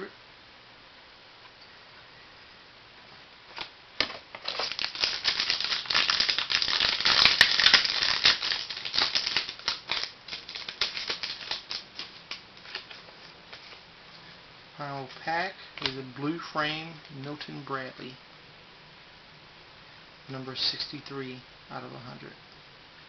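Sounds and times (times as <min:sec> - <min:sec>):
card pack wrapper crinkling: 0:03.6 - 0:13.8.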